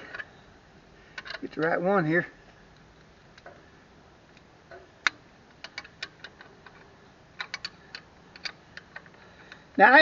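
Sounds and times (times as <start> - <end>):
metallic clicks of hand tools: 5.0 - 9.6.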